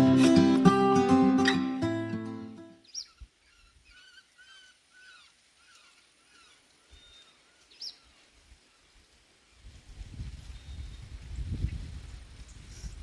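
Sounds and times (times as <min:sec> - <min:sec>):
guitar music: 0:00.0 - 0:02.8
birds whistling calls: 0:02.8 - 0:08.2.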